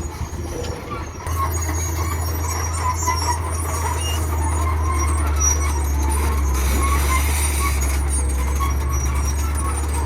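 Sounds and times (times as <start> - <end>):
model trucks humming: 0.0 - 10.0.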